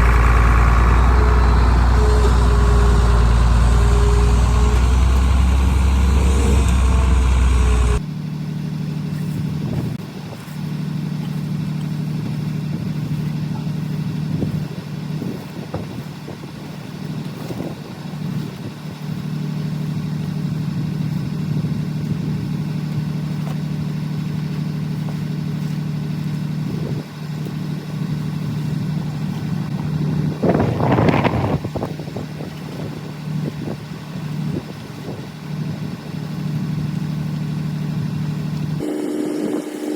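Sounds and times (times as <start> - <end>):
deep rumble: 0.0 - 8.0, 28.3 - 35.2
tractor engine humming: 0.0 - 8.0, 19.5 - 39.9.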